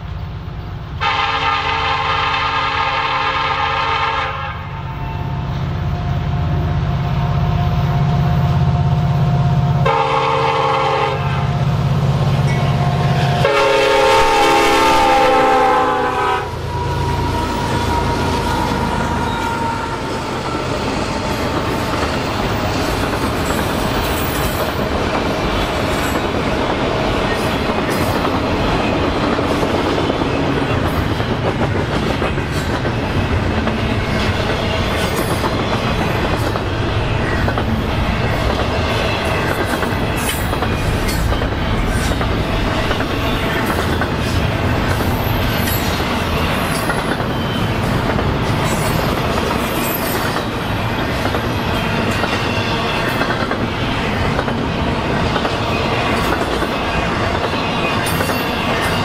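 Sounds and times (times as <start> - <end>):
diesel locomotive engine passing: 0.0 - 59.0
freight train rumbling past: 0.0 - 59.0
locomotive air horn blasts: 1.0 - 5.3, 9.8 - 11.4, 13.2 - 20.1
wheels clacking over rail joints: 17.0 - 59.0.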